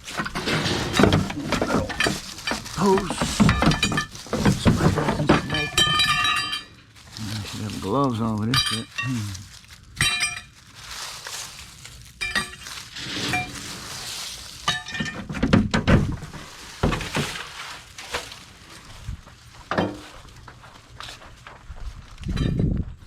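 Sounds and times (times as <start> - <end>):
heavy thuds: 0.0 - 6.6
scrap metal clanking: 0.0 - 7.9, 8.5 - 9.4, 10.0 - 10.6, 12.2 - 18.5.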